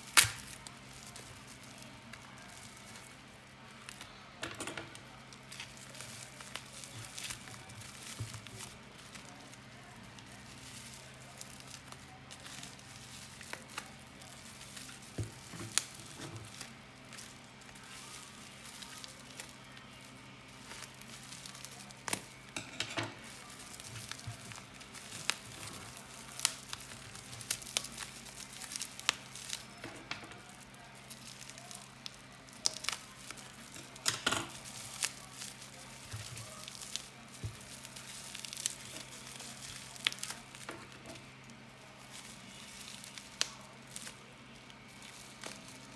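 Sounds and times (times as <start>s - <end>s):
low electrical hum: 0.0s - 45.9s
packaging crinkling: 0.0s - 45.9s.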